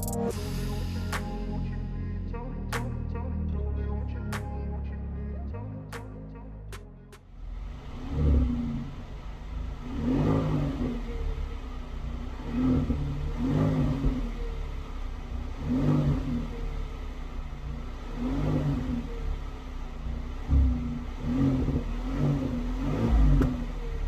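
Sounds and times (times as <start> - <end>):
car engine revving: 7.3 - 24.0.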